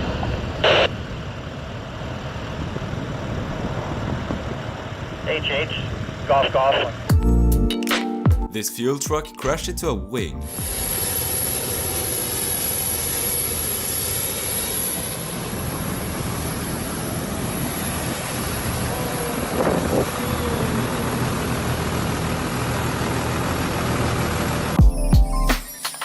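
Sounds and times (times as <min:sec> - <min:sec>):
jet engine roar: 0:10.5 - 0:24.6.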